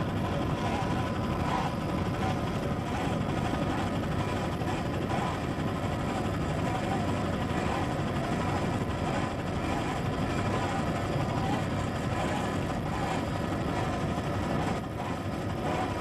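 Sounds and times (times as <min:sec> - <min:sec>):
powerboat engines running: 0:00.0 - 0:16.0
wind: 0:00.0 - 0:16.0.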